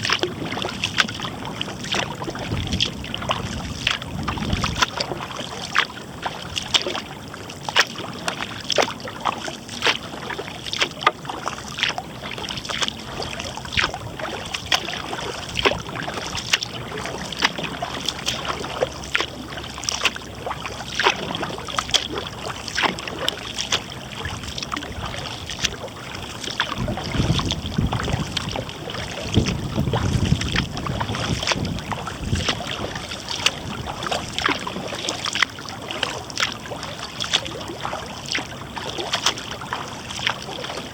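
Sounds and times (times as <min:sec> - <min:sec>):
paddle splashing into water: 0:00.0 - 0:40.9
wind rumble on microphone: 0:00.0 - 0:40.9
water dripping: 0:09.7 - 0:40.9.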